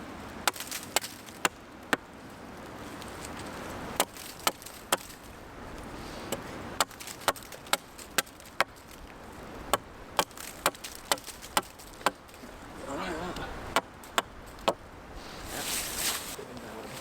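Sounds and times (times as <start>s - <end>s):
tool chopping wood: 0.4s - 2.1s, 4.0s - 5.2s, 6.3s - 8.9s, 9.7s - 12.4s, 13.7s - 14.8s.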